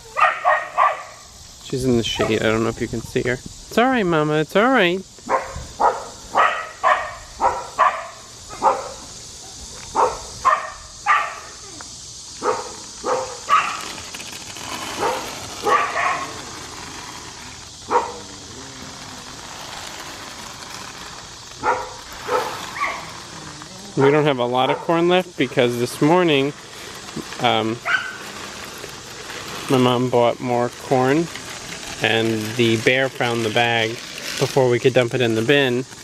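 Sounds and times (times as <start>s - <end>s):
high insect drone: 0.0s - 36.0s
dog barking: 0.1s - 1.2s, 5.3s - 11.5s, 12.4s - 13.8s, 15.0s - 16.3s, 17.9s - 18.2s, 21.6s - 23.0s, 27.8s - 28.2s.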